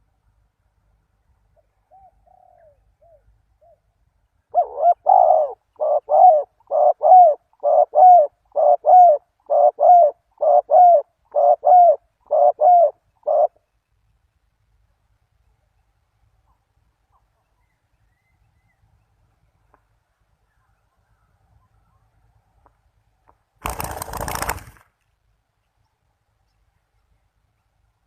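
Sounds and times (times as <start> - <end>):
dove cooing: 1.6 - 3.8, 4.5 - 13.6.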